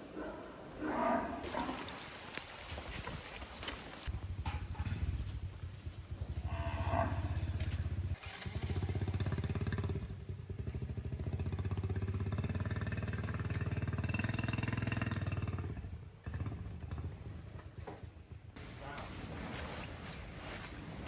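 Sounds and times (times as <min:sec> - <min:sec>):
small engine running: 0:04.7 - 0:17.0.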